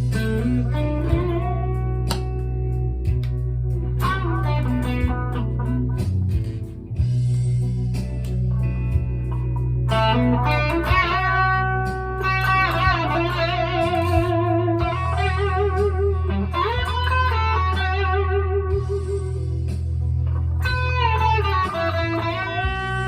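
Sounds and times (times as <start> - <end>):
electric guitar sustained notes: 8.5 - 23.0.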